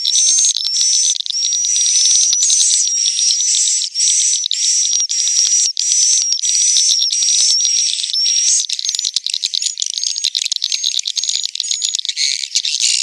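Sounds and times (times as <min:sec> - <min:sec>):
swiftlet buzzing calls: 0:00.0 - 0:08.7.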